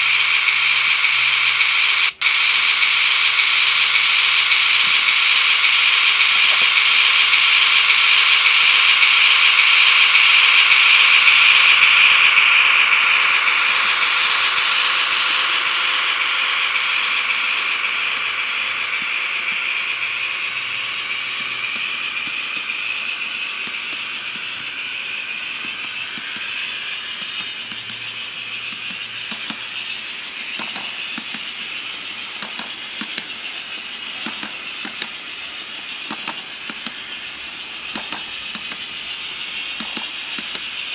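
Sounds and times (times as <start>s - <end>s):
model train whirring on track: 0.0s - 40.9s.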